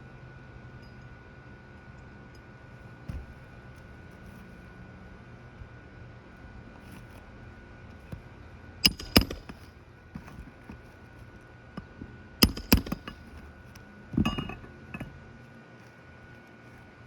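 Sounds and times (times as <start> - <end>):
nails hammered into shingle: 8.8 - 10.8, 11.8 - 13.5.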